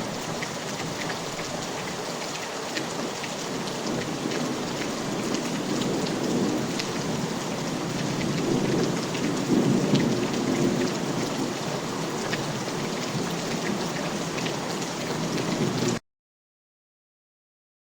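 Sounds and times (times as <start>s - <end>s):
heavy rain: 0.0s - 16.0s
pattering raindrops: 0.0s - 16.0s
low rumble of thunder: 3.4s - 16.0s.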